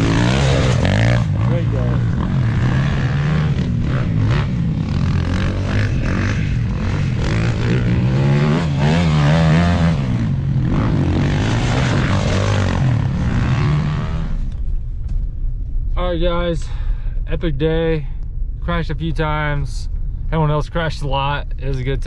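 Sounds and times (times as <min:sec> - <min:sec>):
dirt bike engine revving: 0:00.0 - 0:14.6.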